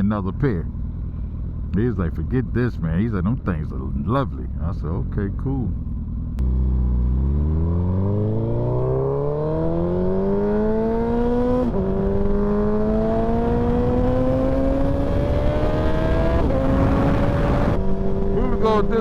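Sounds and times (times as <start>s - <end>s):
motorcycle engine accelerating: 4.3s - 19.0s.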